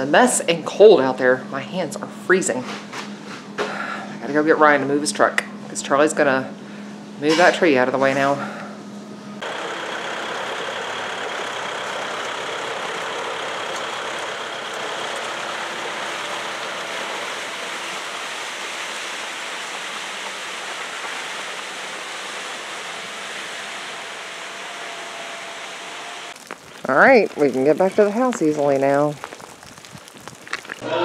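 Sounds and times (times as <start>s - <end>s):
vehicle engine running: 9.4s - 29.8s.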